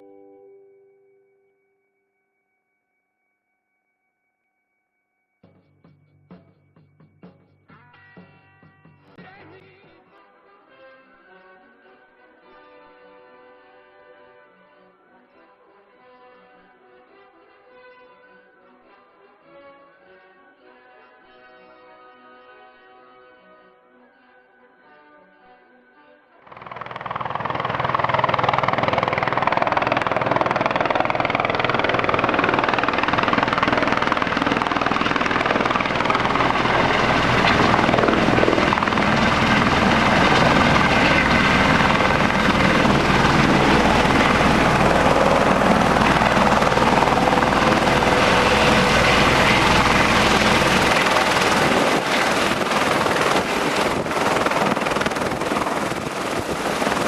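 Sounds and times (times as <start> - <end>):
helicopter rotor and turbine: 26.5 - 57.0.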